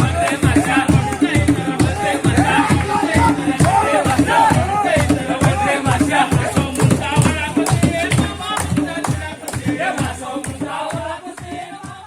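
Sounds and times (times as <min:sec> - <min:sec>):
fast drumming: 0:00.0 - 0:12.0
group singing: 0:00.0 - 0:12.0.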